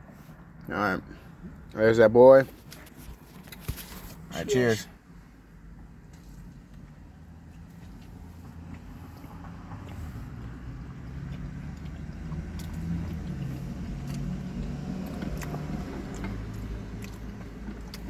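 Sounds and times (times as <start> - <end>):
light clicks and rustles: 2.4 - 4.3.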